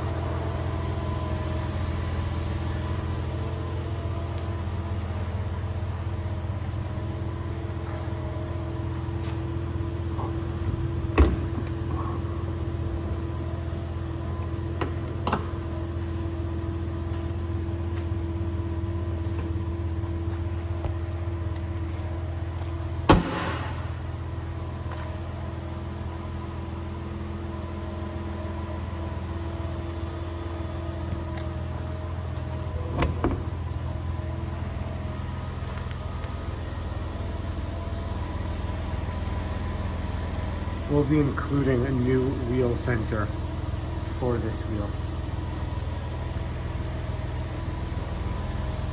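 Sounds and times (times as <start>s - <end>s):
car engine idling: 0.0s - 48.9s.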